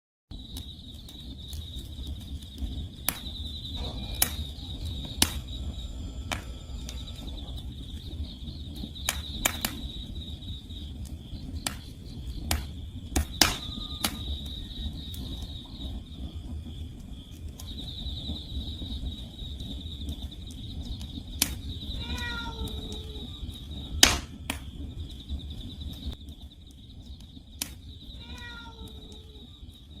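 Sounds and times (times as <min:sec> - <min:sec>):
crickets chirping: 0:00.3 - 0:30.0
firewood crackling and popping: 0:00.3 - 0:30.0
low steady rumble: 0:03.6 - 0:22.0
cat meowing: 0:21.9 - 0:23.4, 0:28.2 - 0:29.5.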